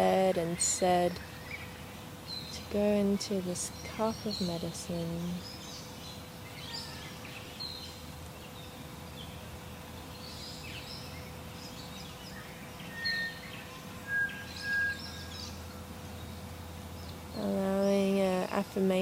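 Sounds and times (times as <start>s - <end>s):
faint steady hum: 0.0s - 19.0s
birds chirping and calling: 10.1s - 16.4s
clear whistled bird notes: 12.2s - 16.2s.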